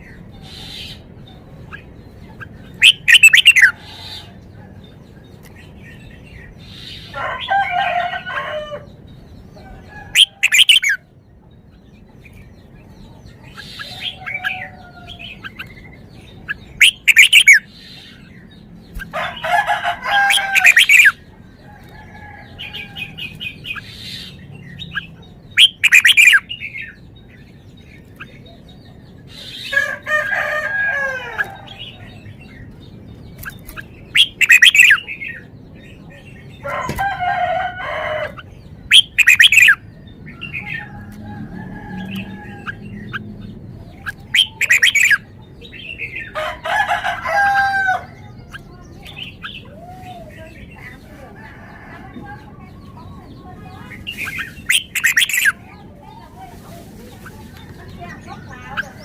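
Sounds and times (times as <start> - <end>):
quiet bird calls: 0.0 - 7.5, 8.2 - 30.3, 30.9 - 59.0
bird singing warbled phrases: 0.0 - 59.0.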